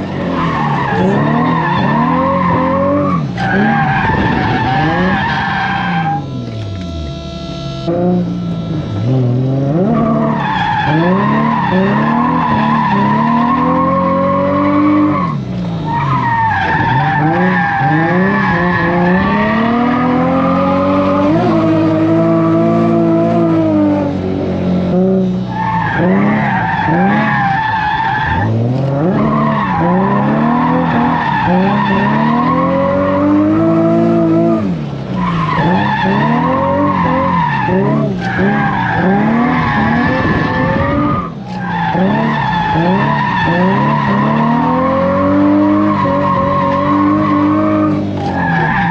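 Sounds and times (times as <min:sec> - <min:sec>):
tyres squealing: 0:00.0 - 0:23.5
car engine revving: 0:00.0 - 0:48.9.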